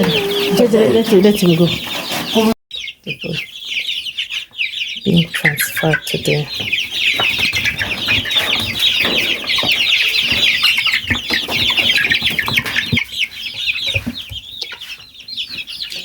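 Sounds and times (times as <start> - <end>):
chicks peeping: 0.0 - 16.0
knocks: 7.2 - 11.8.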